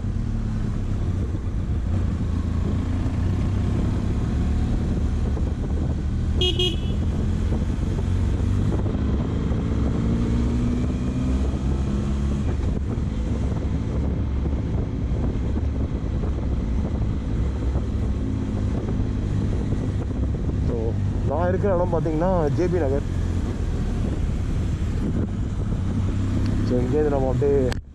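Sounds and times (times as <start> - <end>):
motorcycle engine running: 0.0 - 10.3
vehicle horn toot: 6.4 - 7.1.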